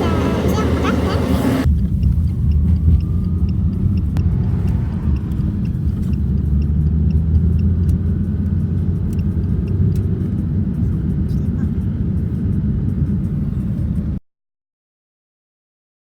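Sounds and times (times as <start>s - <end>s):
car engine and road noise: 0.0s - 14.2s
faint rising tone: 2.5s - 7.8s.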